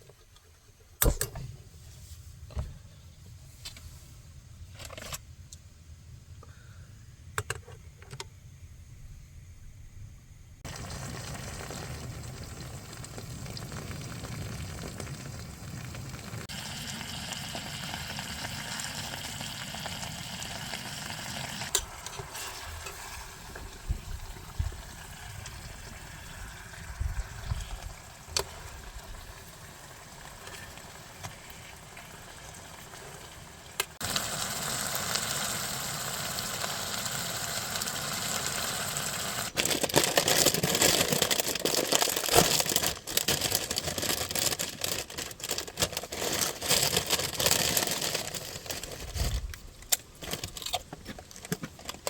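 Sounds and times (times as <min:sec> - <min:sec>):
food sizzling in a pan: 0:10.6 - 0:39.6.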